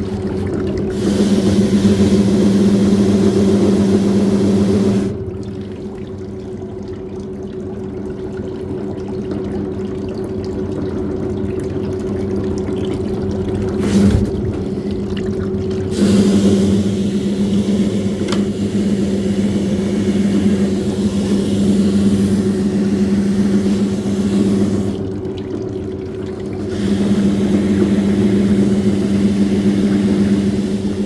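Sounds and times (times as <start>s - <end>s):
motor hum: 0.0s - 6.7s, 12.9s - 31.0s
washing machine running: 0.0s - 31.0s
water pouring: 0.0s - 31.0s.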